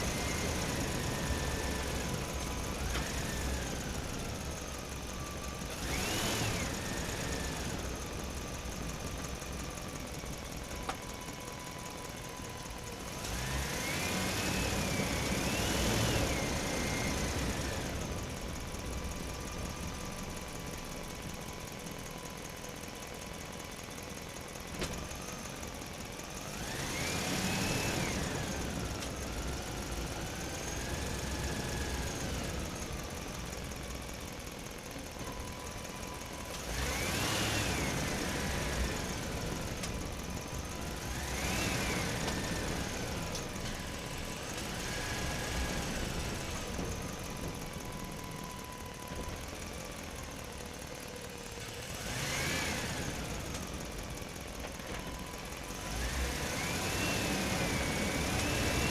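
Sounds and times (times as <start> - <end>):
toy excavator motors whining: 0.0 - 20.0, 26.4 - 58.9.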